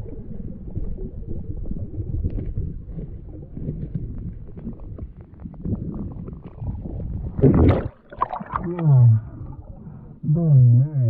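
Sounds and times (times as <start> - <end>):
muffled underwater rumble: 0.0 - 11.0
rush of water or breath: 5.6 - 10.2.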